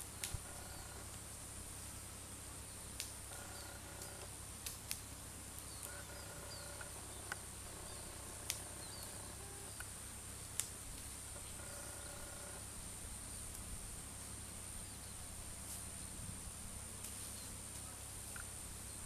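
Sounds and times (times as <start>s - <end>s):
steady high-pitched hum: 0.0s - 19.0s
bird chirps: 5.6s - 9.9s.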